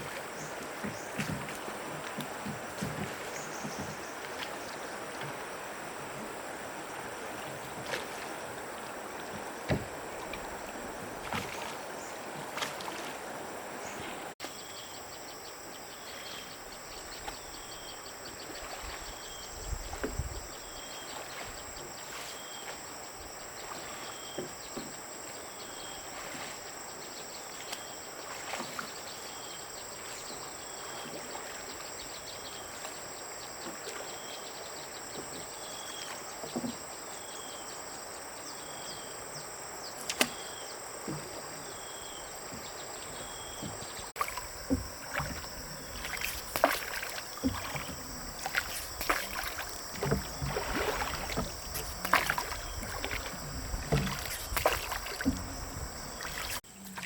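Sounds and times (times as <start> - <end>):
high insect drone: 37.1 - 57.0.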